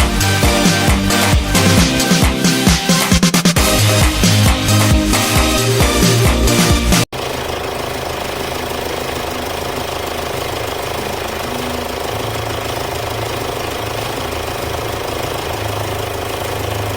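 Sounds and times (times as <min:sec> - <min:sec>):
diesel engine idling: 0:03.6 - 0:16.9.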